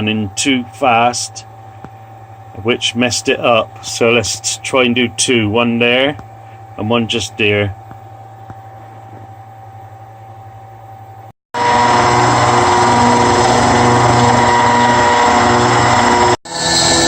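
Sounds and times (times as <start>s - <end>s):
low steady hum: 0.0s - 11.3s
router spindle milling metal: 11.6s - 17.0s.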